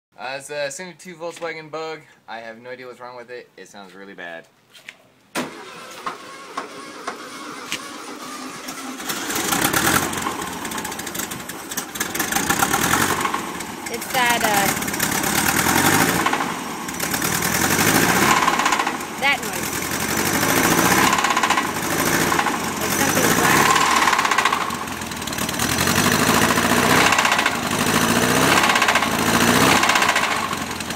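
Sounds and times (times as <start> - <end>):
car engine running rough: 6.2 - 30.9.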